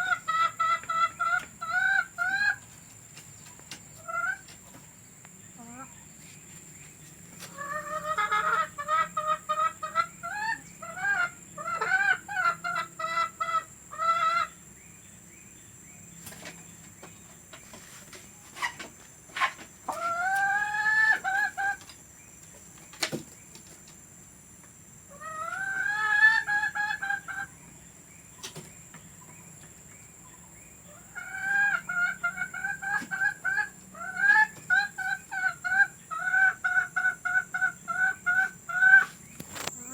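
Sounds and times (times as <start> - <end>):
hen cackling: 0.0 - 2.6, 7.5 - 14.6, 19.4 - 21.8, 25.1 - 27.6, 30.9 - 39.9.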